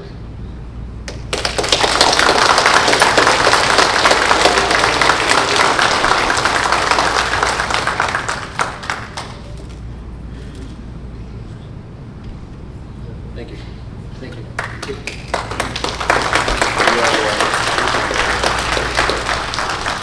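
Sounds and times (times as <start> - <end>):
audience applauding: 1.1 - 10.0, 14.6 - 20.0.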